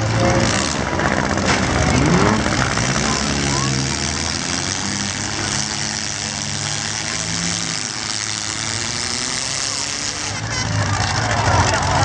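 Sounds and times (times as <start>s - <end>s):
car engines running: 0.0s - 12.0s.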